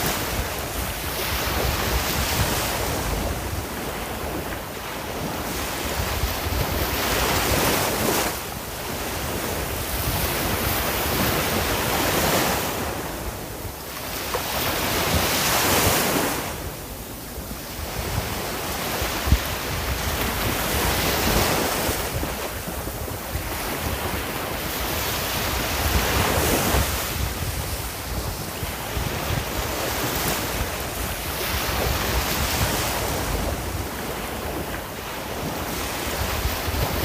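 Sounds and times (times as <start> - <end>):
sea waves breaking on shore: 0.0 - 37.0
wind buffeting microphone: 0.0 - 37.0.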